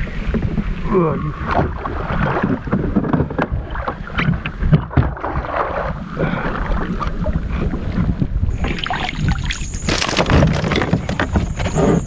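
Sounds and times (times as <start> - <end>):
wind buffeting microphone: 0.0 - 12.0
knocks and bumps on kayak: 1.5 - 6.0, 7.0 - 12.0
fish thrashing and splashing: 1.5 - 12.0.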